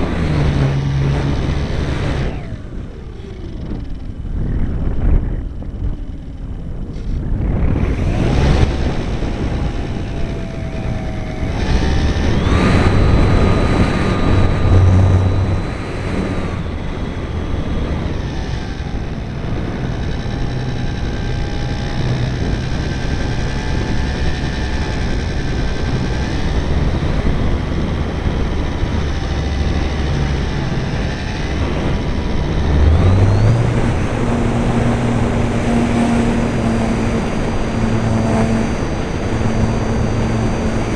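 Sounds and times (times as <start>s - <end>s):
model airplane motor whine: 0.0s - 40.9s
wind noise: 0.0s - 40.9s.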